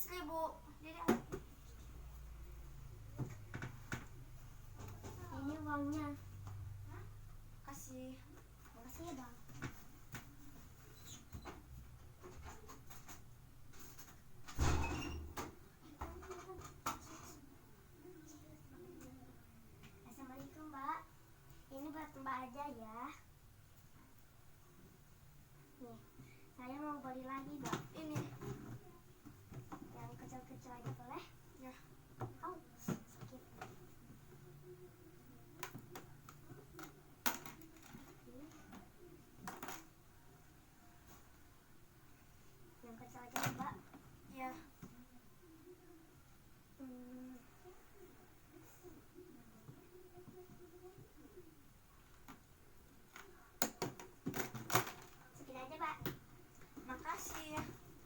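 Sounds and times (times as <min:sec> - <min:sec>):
small handling clicks and knocks: 0:53.1 - 0:55.2.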